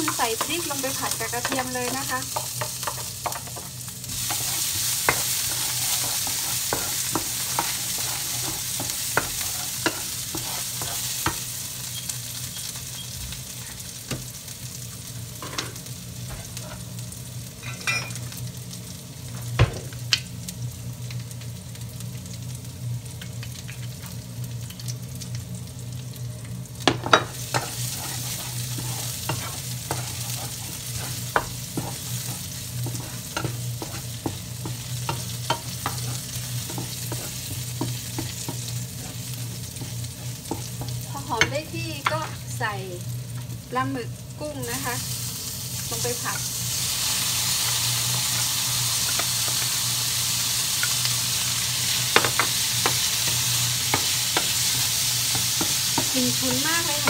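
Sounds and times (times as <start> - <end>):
chillies and garlic sizzling in oil: 0.0 - 57.0
extractor fan humming: 26.3 - 57.0.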